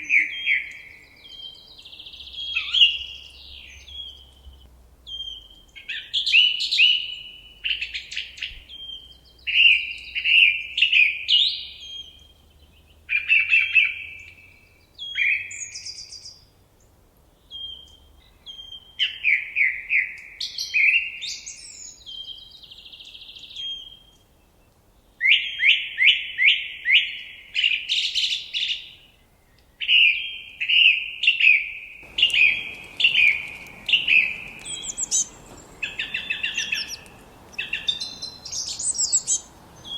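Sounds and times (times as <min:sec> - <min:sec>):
songbird chirping: 0:29.9 - 0:39.9
faint steady hiss: 0:32.0 - 0:39.9.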